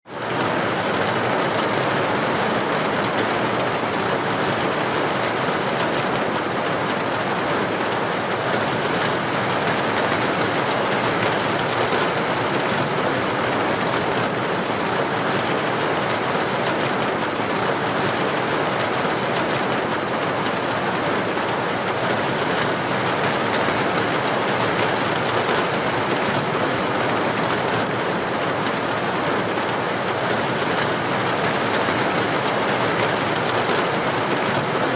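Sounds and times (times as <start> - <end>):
heavy rain on street: 0.1 - 34.9.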